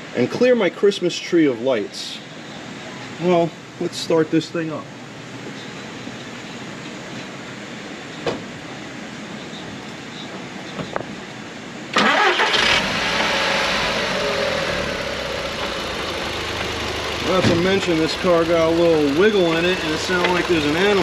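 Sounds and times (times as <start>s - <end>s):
car engine starter cranking: 11.9s - 21.0s
car engine rough idle: 12.1s - 21.0s.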